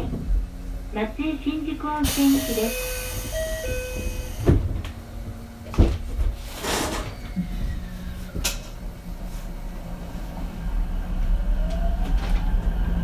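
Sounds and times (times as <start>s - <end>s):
train door chime: 2.0s - 4.6s.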